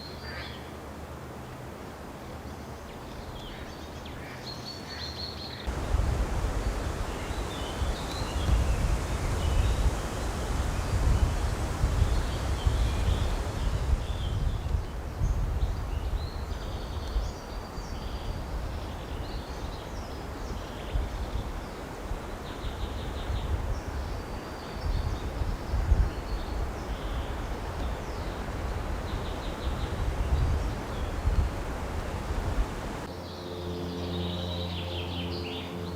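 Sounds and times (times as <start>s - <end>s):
small birds singing: 2.5s - 35.9s
wind on microphone: 5.7s - 33.1s.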